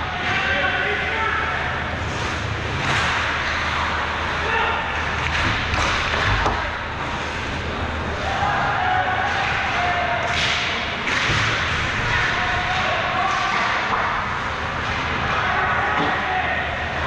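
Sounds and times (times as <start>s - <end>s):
hockey stick and puck hits: 2.2s - 6.8s, 8.2s - 16.3s.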